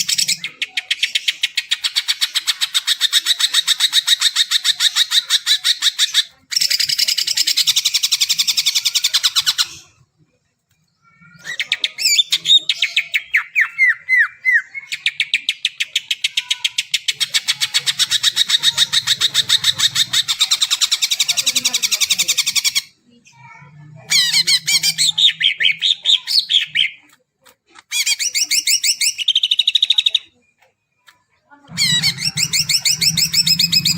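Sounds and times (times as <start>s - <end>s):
bird singing rapid trills: 31.7s - 33.9s.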